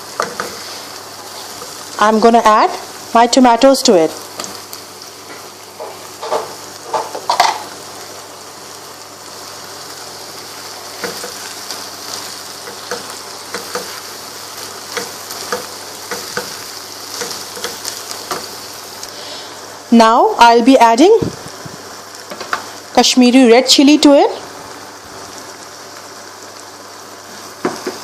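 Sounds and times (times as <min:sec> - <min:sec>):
onions frying in oil: 0:00.0 - 0:28.0.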